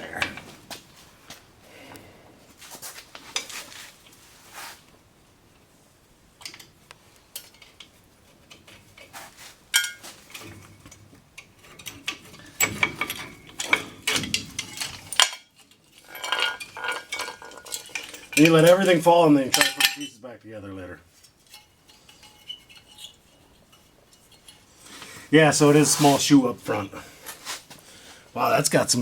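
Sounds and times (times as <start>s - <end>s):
metal brake parts clinking: 9.8s - 20.2s, 21.2s - 25.0s.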